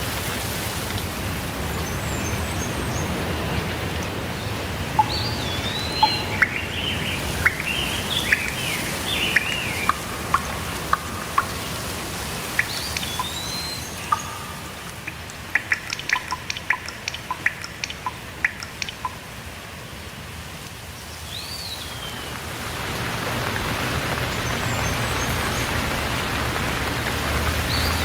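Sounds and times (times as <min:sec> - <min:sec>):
steady rain hiss: 0:00.0 - 0:28.0
songbirds whistling and warbling: 0:04.4 - 0:19.2, 0:21.3 - 0:22.4
short sharp ticks: 0:14.1 - 0:19.2.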